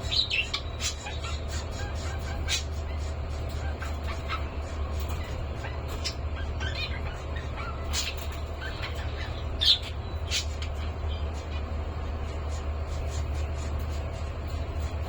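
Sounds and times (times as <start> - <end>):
cockatiels chirping and squawking: 0.0 - 15.0
steady low hum: 0.0 - 15.0.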